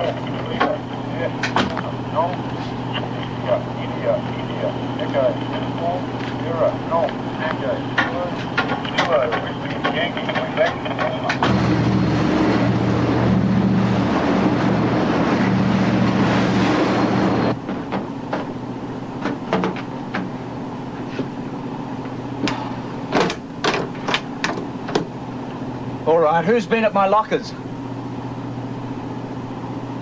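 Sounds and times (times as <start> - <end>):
boat engine drone: 0.0 - 30.0
sharp clicks and knocks: 1.4 - 2.4, 7.0 - 11.6, 19.2 - 20.3, 22.4 - 25.1
water rushing past boat: 9.6 - 18.2.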